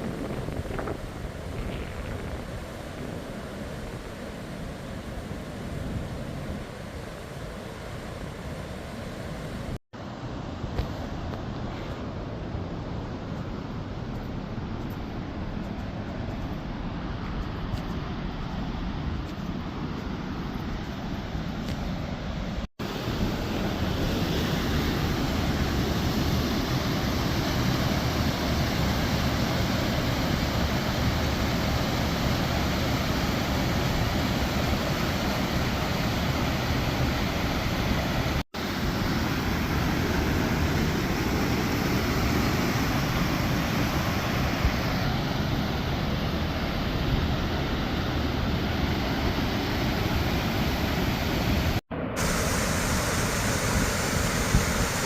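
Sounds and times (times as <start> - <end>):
waterfall rushing: 23.1 - 55.0.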